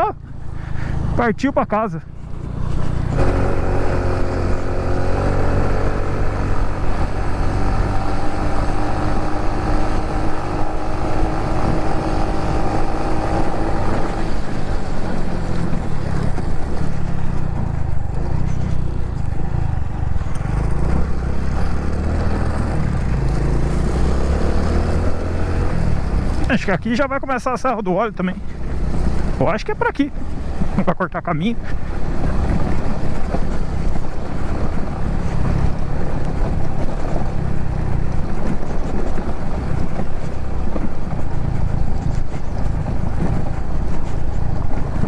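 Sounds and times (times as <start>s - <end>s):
motorbike engine running: 0.0s - 45.0s.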